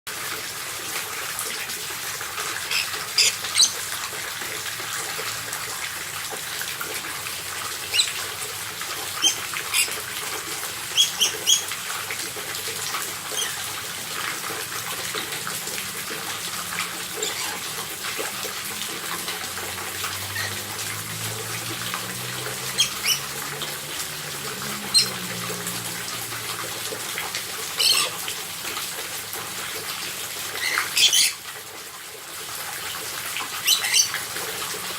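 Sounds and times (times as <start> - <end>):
parrots squawking: 2.6 - 3.8, 7.9 - 8.2, 9.2 - 10.2, 10.9 - 11.8, 13.3 - 13.7, 16.8 - 17.9, 20.2 - 20.7, 22.6 - 23.8, 24.6 - 25.3, 27.7 - 28.2, 30.5 - 31.4, 33.6 - 34.2.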